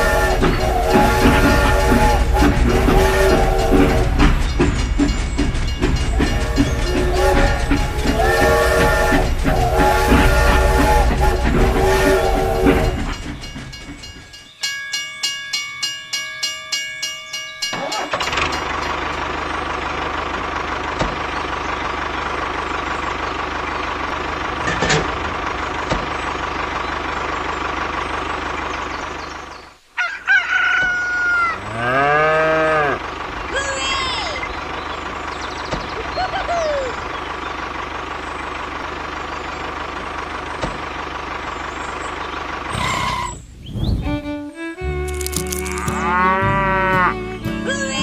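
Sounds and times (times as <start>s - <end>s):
rhythmic pulsing tones: 0.0s - 14.6s
rooster crowing: 30.0s - 32.9s.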